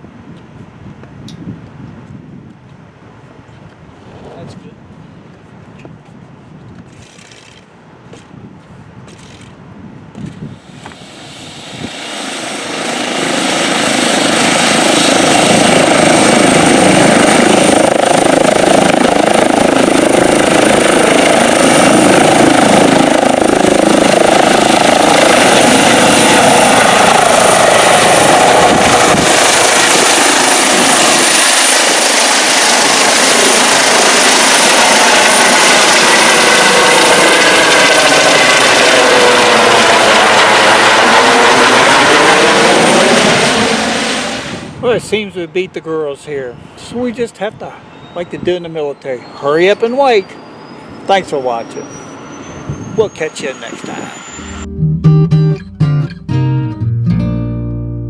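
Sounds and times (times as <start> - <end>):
aircraft engine running: 10.2 - 44.8, 49.2 - 56.3
high engine whine: 10.3 - 44.8, 49.2 - 56.5.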